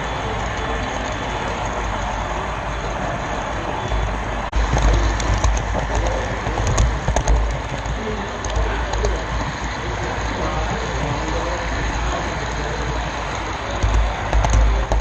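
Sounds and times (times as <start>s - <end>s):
model train rolling rumble: 0.0s - 15.0s
clicks over rail joints: 4.6s - 15.0s.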